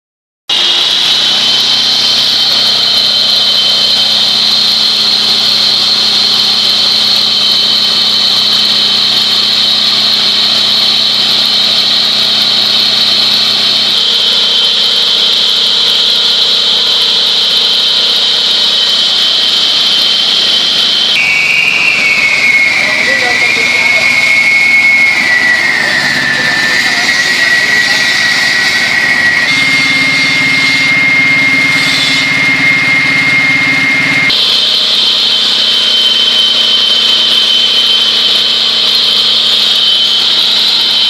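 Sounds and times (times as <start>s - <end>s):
floor saw high whine: 0.5s - 41.0s.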